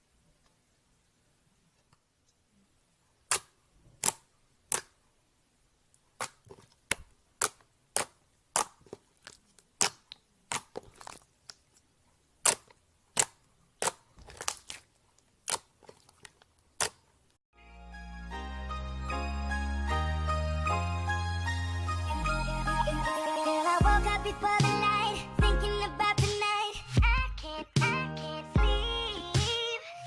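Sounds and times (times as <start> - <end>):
slime popping and snapping: 3.3 - 5.0, 6.2 - 11.8, 12.4 - 17.0.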